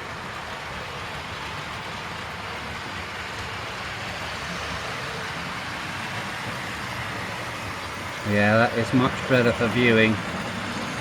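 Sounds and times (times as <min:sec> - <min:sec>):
model train wheels on rails: 0:00.0 - 0:11.0.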